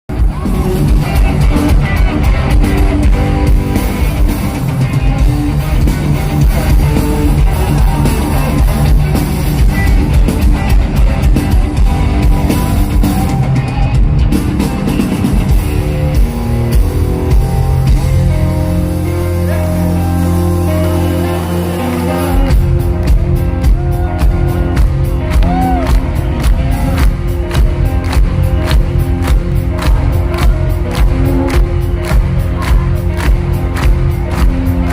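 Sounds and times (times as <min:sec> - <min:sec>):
rock music with guitars and drums: 0:00.1 - 0:34.9.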